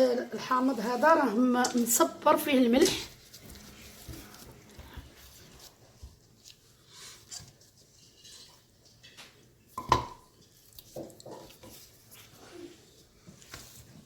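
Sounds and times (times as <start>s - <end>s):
kitchenware clicks and rustles: 7.2s - 12.4s.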